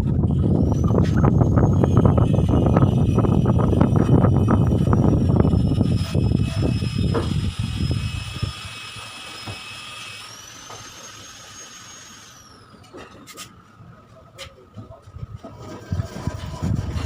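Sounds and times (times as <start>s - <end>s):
small electric motor whining: 0.0s - 13.8s.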